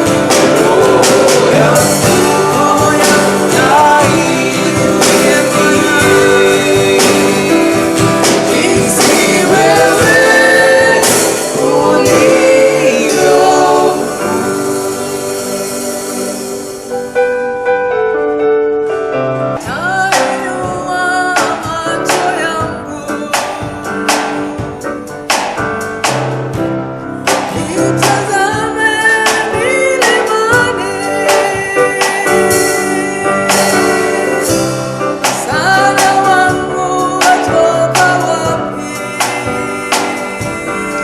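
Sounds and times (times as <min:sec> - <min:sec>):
person singing: 0:00.0 - 0:17.1, 0:19.6 - 0:24.8, 0:27.4 - 0:41.0
steady beat: 0:00.0 - 0:17.4
guitar: 0:00.0 - 0:41.0
keyboard: 0:00.0 - 0:41.0.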